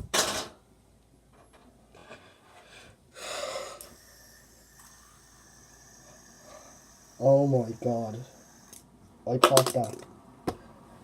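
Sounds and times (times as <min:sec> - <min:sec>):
person breathing sharply: 0:02.6 - 0:08.7
person gasping: 0:03.2 - 0:07.9.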